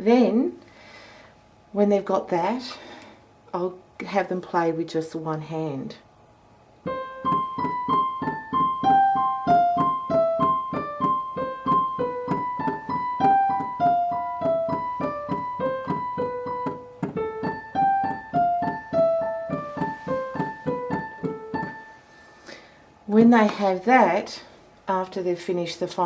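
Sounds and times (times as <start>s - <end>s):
piano single notes: 6.8s - 22.0s.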